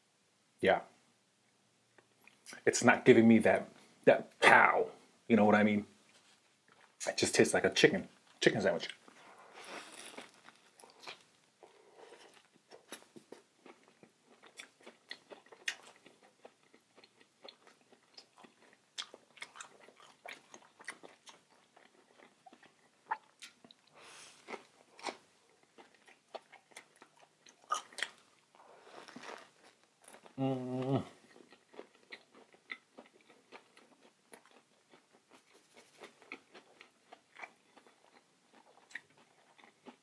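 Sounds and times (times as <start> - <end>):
person chewing food: 6.6 - 7.0, 8.8 - 40.0.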